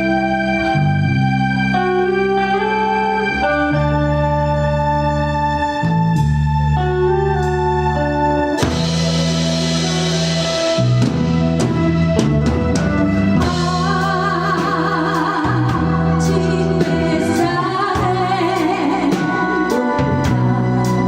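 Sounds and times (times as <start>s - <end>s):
bass: 0.0s - 21.0s
organ-toned keyboard: 0.0s - 21.0s
wavering melodic lead: 0.0s - 21.0s
drum kit: 5.9s - 21.0s.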